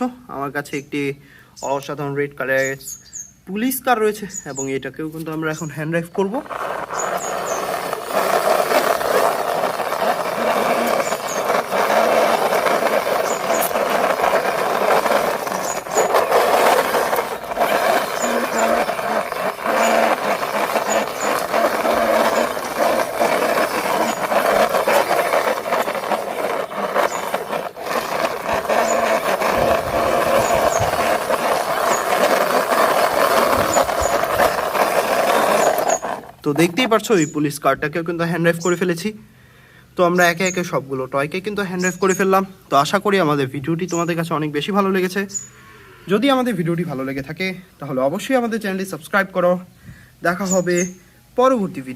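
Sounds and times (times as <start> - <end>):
toy car wheels rolling and rattling: 6.2 - 37.3.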